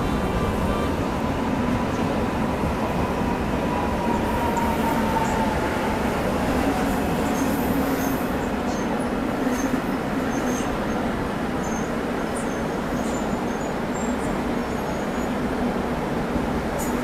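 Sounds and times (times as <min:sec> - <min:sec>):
electric train whine: 0:00.0 - 0:12.0
train wheels rumbling on track: 0:00.0 - 0:17.0.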